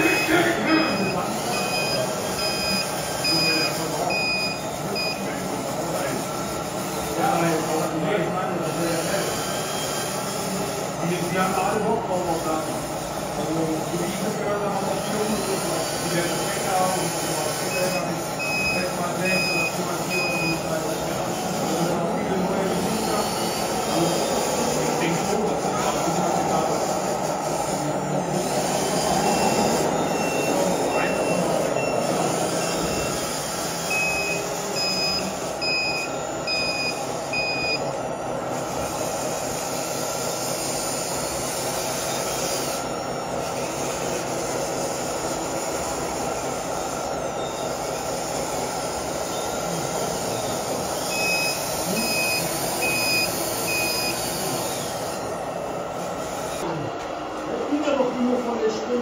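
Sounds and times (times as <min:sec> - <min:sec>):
reversing beeper short beeps: 0:00.0 - 0:05.3, 0:17.7 - 0:20.7, 0:29.2 - 0:33.3, 0:33.9 - 0:37.9, 0:51.1 - 0:54.3
people talking: 0:00.0 - 0:06.4, 0:07.0 - 0:09.4, 0:10.4 - 0:33.1, 0:51.8 - 0:52.5, 0:56.6 - 0:59.0
steady hum of running models: 0:00.0 - 0:59.0.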